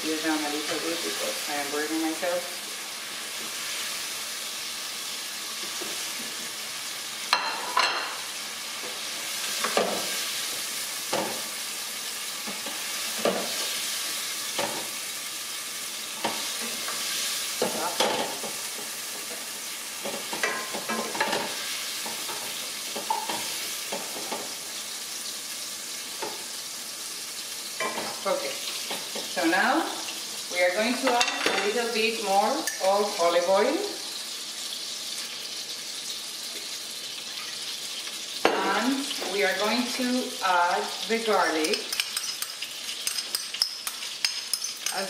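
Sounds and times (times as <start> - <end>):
shrimp sizzling in a pan: 0.0 - 45.0.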